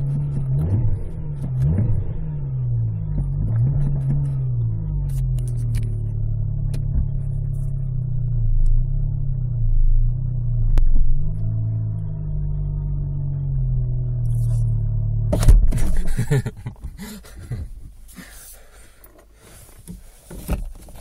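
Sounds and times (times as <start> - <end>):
car engine idling: 0.0 - 21.0
thump: 15.3 - 16.1.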